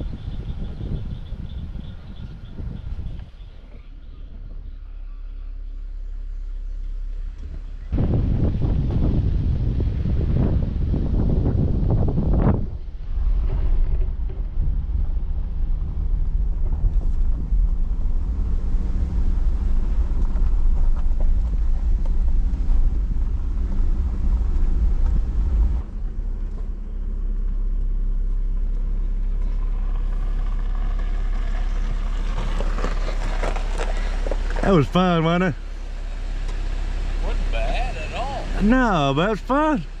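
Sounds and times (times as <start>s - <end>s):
vehicle driving on rough dirt road: 0.0s - 40.0s.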